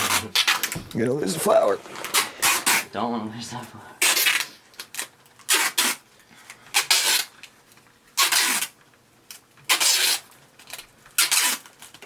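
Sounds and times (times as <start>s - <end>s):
tape ripping off roll: 0.0s - 2.9s, 4.0s - 6.1s, 6.7s - 7.5s, 8.1s - 12.0s.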